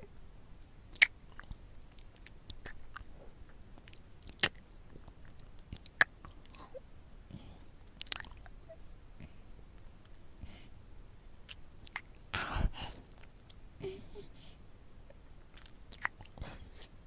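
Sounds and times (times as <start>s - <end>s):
soft lip clicks: 0.9s - 6.6s, 7.8s - 10.5s, 11.3s - 12.4s, 15.1s - 17.0s.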